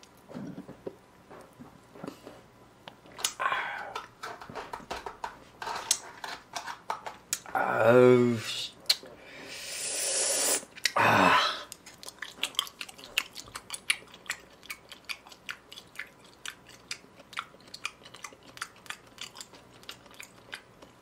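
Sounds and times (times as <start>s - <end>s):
person chewing with wet mouth clicks: 2.8s - 3.4s, 11.7s - 21.0s
loud breathy noise: 9.2s - 11.7s.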